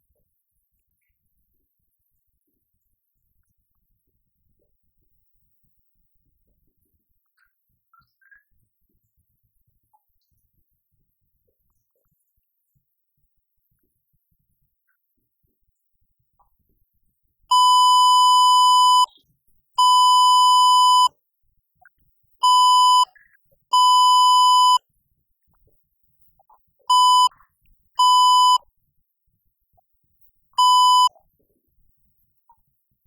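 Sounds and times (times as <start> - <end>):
electronic beeps: 17.5 - 19.2, 19.8 - 21.1, 22.4 - 24.8, 26.9 - 27.4, 28.0 - 28.6, 30.6 - 31.2.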